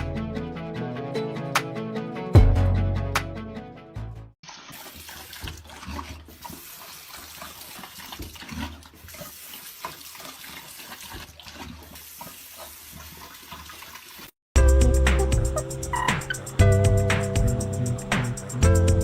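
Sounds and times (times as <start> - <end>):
running water splashing: 4.4 - 14.4.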